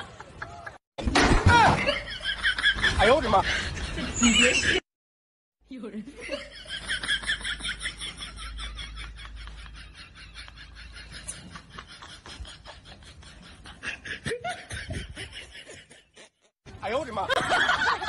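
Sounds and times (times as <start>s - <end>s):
high-pitched giggling laughter: 6.4s - 16.5s.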